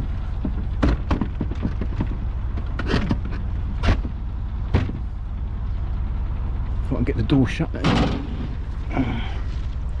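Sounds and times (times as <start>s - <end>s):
steady low rumble: 0.0s - 10.0s
sharp knocks and thumps: 0.4s - 5.1s, 7.8s - 8.6s.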